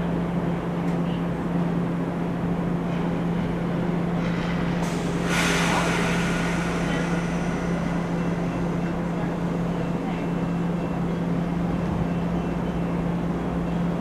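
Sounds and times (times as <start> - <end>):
stopped train humming: 0.0 - 14.0
air hissing: 4.2 - 11.1.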